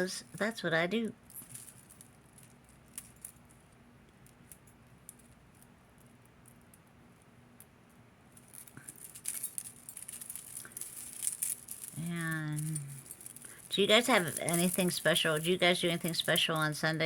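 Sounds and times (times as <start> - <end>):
beads clicking together: 8.3 - 17.0.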